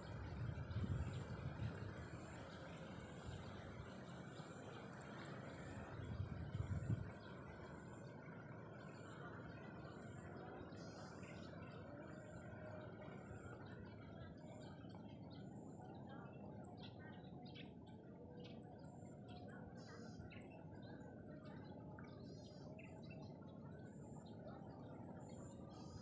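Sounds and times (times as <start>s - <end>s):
low background rumble: 0.0s - 11.4s.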